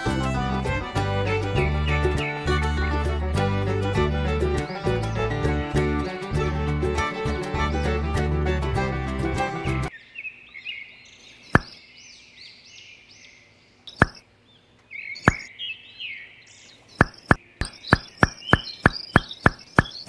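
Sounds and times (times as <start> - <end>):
birds chirping: 0.0 - 20.0
sharp knocks: 11.6 - 11.8, 14.0 - 14.2, 17.0 - 20.0.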